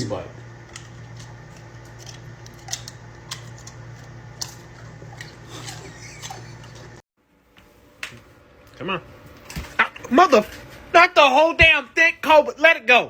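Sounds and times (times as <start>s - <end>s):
steady low hum: 0.0s - 12.7s
dog crunching food: 0.7s - 6.9s.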